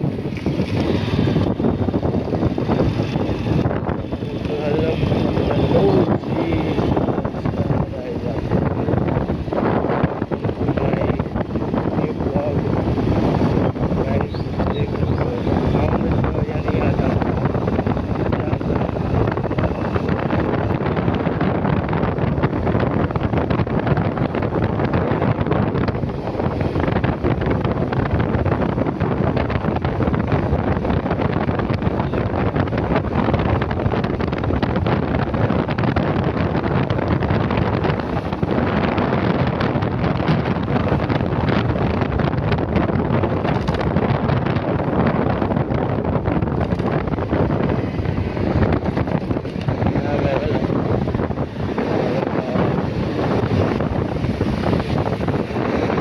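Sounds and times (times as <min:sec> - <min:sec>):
motorcycle engine: 0:00.0 - 0:07.5
road noise: 0:00.0 - 0:56.0
wind buffeting microphone: 0:00.0 - 0:56.0.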